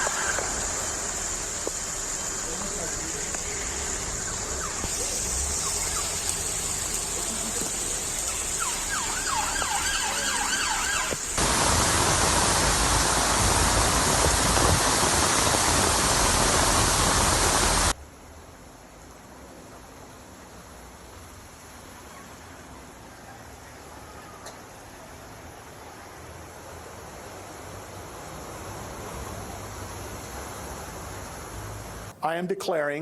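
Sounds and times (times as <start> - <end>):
siren wailing: 8.2 - 11.3.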